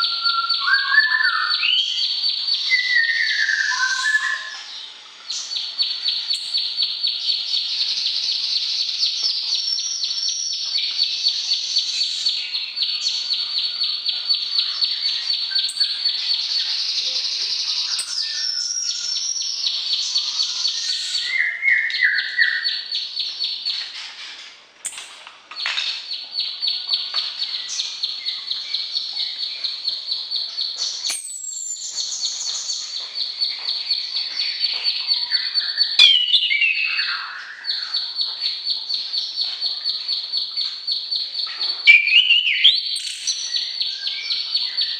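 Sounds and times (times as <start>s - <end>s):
bird high chirping song: 0.0s - 44.9s
high sweeping bird call: 2.7s - 4.7s, 35.2s - 38.2s.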